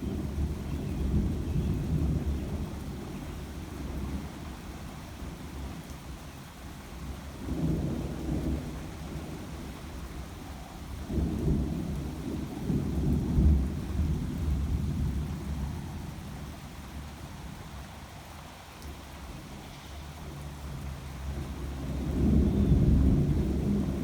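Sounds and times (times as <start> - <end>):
rolling thunder: 11.0 - 15.8, 21.3 - 24.0.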